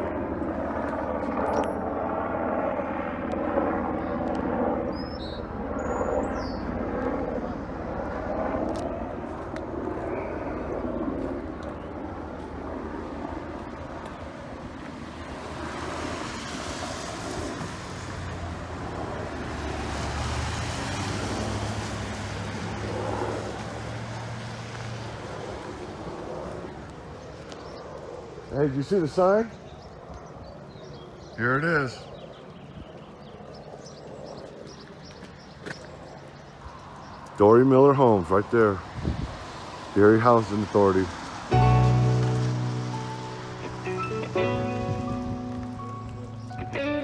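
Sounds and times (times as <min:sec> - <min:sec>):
road and passing traffic hiss: 0:06.4 - 0:29.6, 0:35.1 - 0:47.0.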